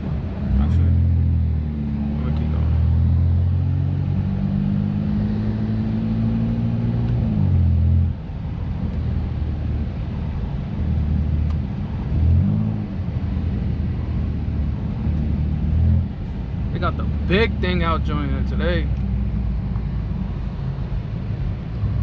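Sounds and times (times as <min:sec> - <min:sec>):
car engine droning while driving: 0:00.0 - 0:22.0.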